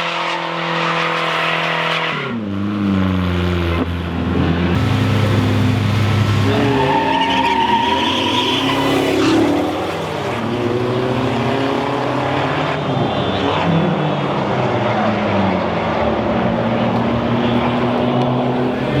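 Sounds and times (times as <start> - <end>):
sports car engines revving: 0.0 - 19.0
brief high squeal: 6.6 - 9.4.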